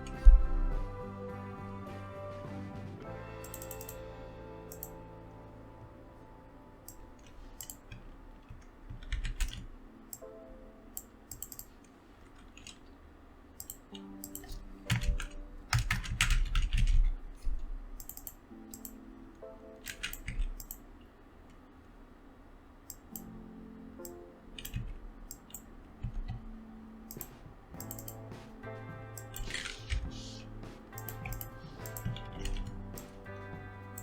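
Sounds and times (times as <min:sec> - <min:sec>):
typing on computer keyboard: 0:03.4 - 0:04.0, 0:06.8 - 0:10.3, 0:10.9 - 0:12.9, 0:13.6 - 0:17.2, 0:18.0 - 0:19.0, 0:19.8 - 0:20.9, 0:24.0 - 0:28.3, 0:31.0 - 0:33.2.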